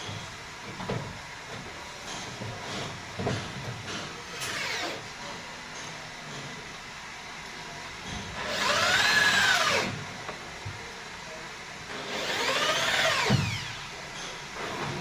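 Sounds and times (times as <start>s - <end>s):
electric power tool spinning: 8.4s - 9.9s, 12.1s - 13.9s.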